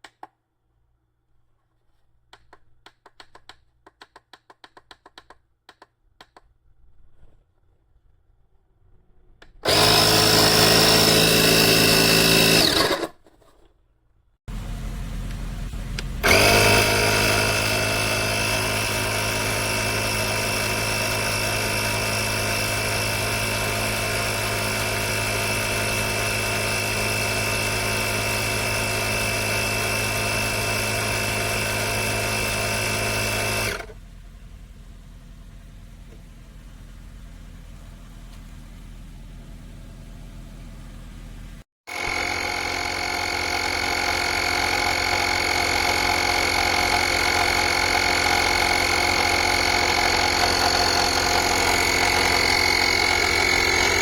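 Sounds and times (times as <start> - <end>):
air compressor droning: 9.6 - 13.0, 14.5 - 54.0.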